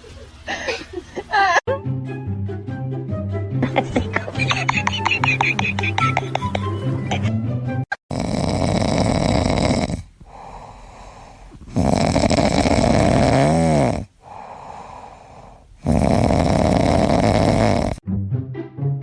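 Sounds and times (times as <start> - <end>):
pet snoring: 8.0 - 18.0
quiet breaths: 8.5 - 18.0.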